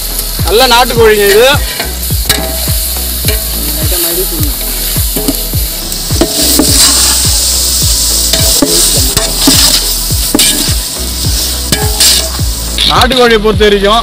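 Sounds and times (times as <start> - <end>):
chicken sizzling in a pot: 0.0 - 13.4
metal ladle stirring: 1.2 - 3.6, 4.5 - 13.0.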